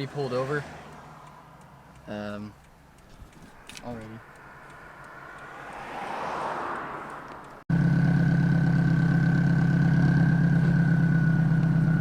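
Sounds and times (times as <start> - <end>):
vehicle passing: 0.0 - 2.1, 2.8 - 7.6
car engine idling loudly: 7.7 - 12.0.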